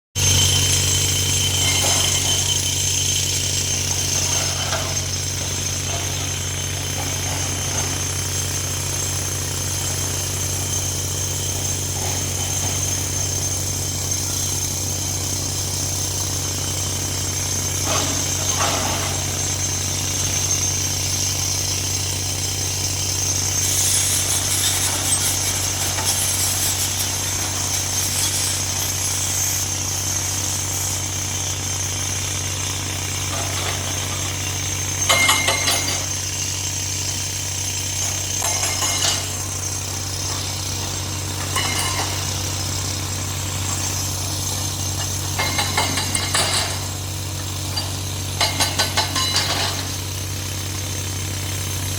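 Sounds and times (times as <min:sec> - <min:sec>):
heavy machinery drone: 0:00.2 - 0:50.0
hiss: 0:17.3 - 0:32.2.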